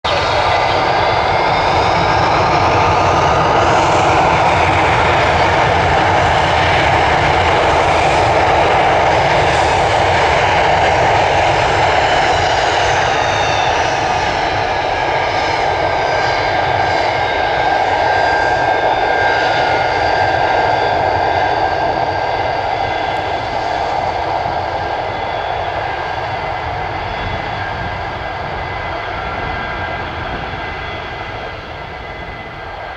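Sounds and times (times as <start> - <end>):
jet engine roar: 0.0 - 32.9
high whining tones: 0.1 - 4.3.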